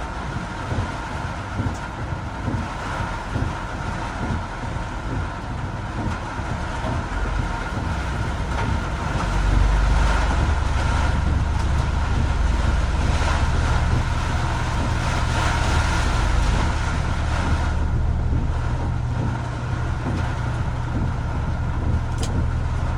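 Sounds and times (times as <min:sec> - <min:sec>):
tyres on wet road: 0:00.0 - 0:22.9
vehicle rumble: 0:00.0 - 0:22.9
rain hissing: 0:06.2 - 0:22.9.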